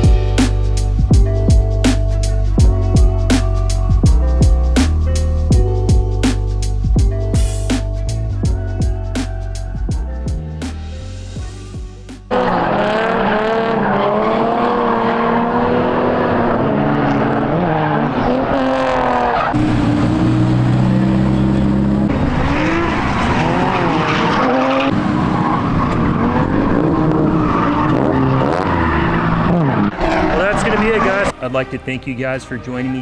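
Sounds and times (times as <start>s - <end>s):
car engines revving: 10.4s - 33.0s
tyres squealing and skidding: 16.4s - 33.0s.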